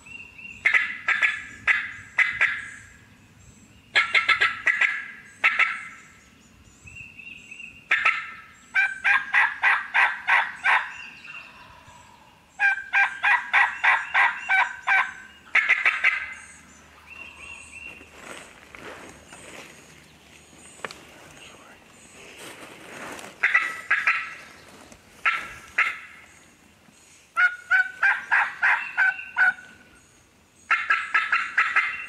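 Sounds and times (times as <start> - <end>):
turkeys gobbling: 0.6 - 2.8, 3.9 - 6.0, 7.9 - 16.4, 23.4 - 24.5, 25.2 - 26.3, 27.4 - 29.8, 30.7 - 32.0.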